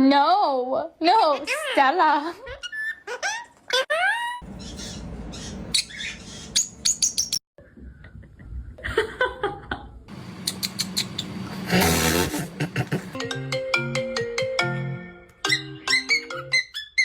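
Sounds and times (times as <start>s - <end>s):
parrot chirping and squeaking: 2.5s - 7.4s, 10.4s - 11.5s, 15.9s - 17.0s.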